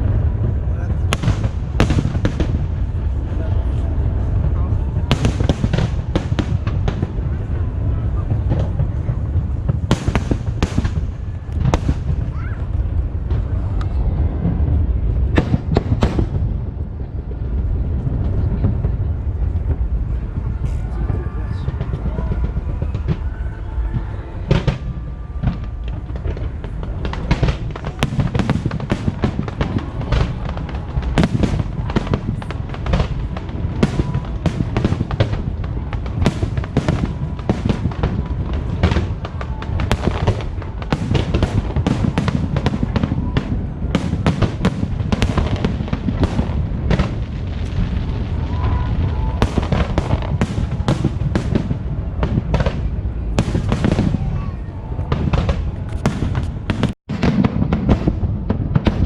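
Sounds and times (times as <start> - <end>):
fireworks bangs and crackles: 0.0 - 59.0
low rumble: 0.0 - 59.0.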